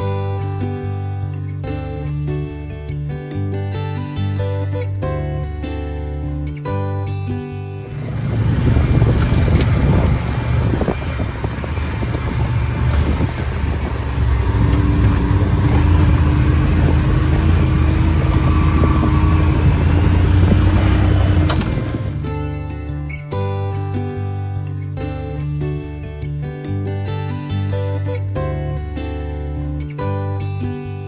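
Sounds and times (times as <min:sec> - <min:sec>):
rattling ride noise: 0:07.9 - 0:22.6
quad engine running: 0:07.9 - 0:22.9.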